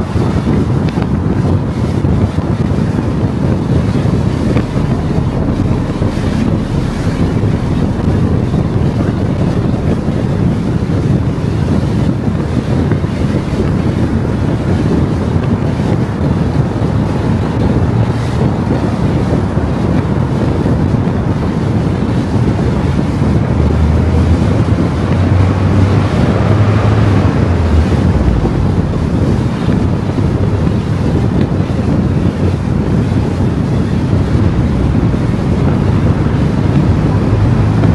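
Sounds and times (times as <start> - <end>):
car road and wind noise: 0.0 - 37.9
heavy low rumble: 0.0 - 37.9.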